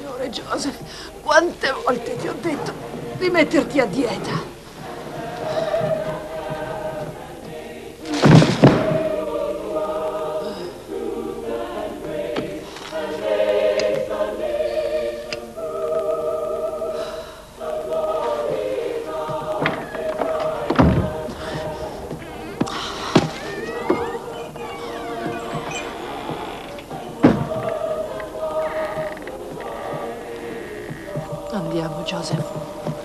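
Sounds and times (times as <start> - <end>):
choir singing held notes: 0.0 - 33.0
heavy thud: 8.2 - 9.1, 19.6 - 24.2.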